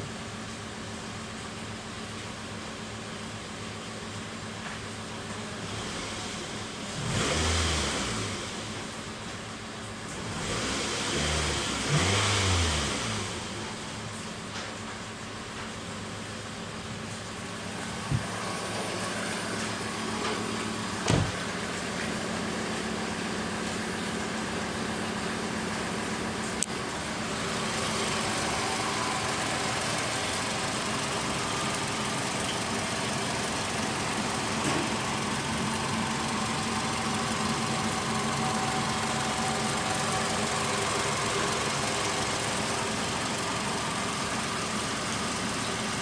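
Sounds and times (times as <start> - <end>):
car engine idling: 7.8 - 46.0
low thump: 18.0 - 18.4, 21.0 - 21.5.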